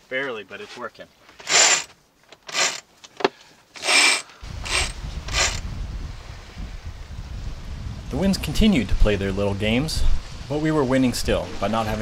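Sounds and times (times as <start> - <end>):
winch ratcheting with rope rubbing: 1.3 - 5.6
wind rumble on microphone: 4.4 - 12.0.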